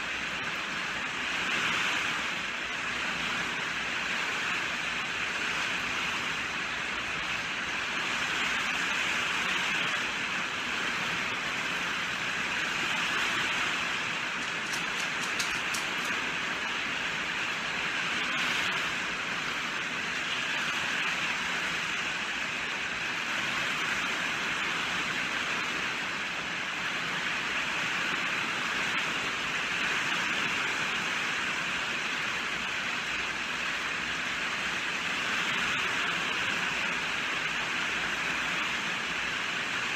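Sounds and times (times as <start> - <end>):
steady rainfall: 0.0 - 39.9
faint sharp ticks: 14.4 - 16.2.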